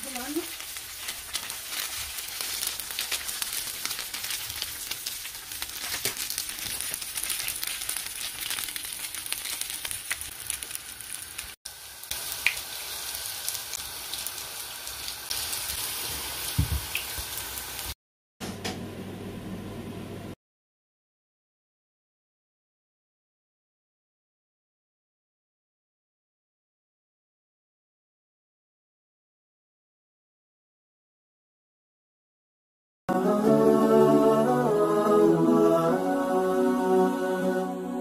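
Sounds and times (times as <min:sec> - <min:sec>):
food sizzling in oil: 0:00.0 - 0:18.0.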